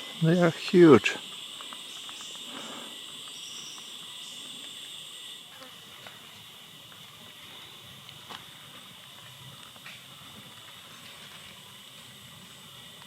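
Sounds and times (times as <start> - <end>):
high insect buzzing: 0.0 - 13.0
insect chorus shrill drone: 0.0 - 13.0.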